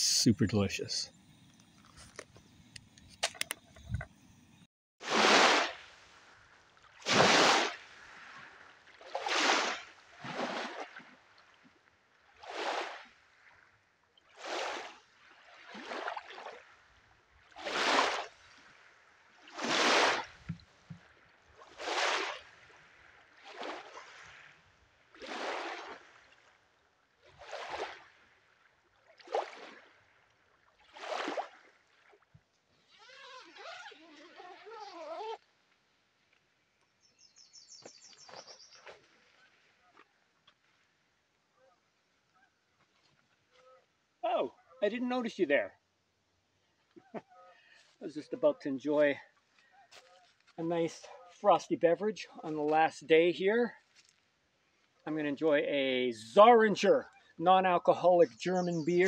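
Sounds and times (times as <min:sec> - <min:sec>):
canoe paddle splashing: 0:05.0 - 0:13.6, 0:14.2 - 0:35.8, 0:37.8 - 0:41.0.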